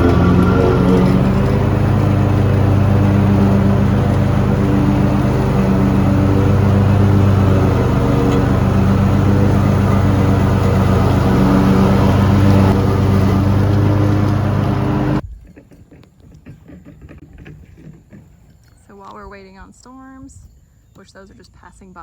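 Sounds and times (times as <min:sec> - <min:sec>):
tractor engine running: 0:00.0 - 0:15.2.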